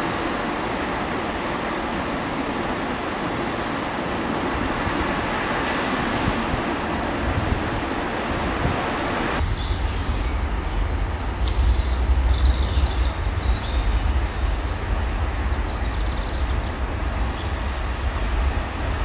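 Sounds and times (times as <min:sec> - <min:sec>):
steady rushing noise: 0:00.0 - 0:19.0
low rumble: 0:09.6 - 0:19.0.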